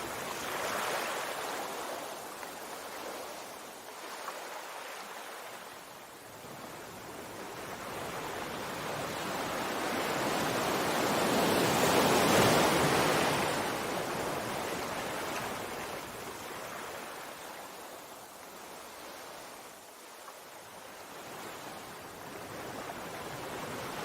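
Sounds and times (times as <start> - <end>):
wave surf washing: 0.0 - 5.8, 6.6 - 19.6.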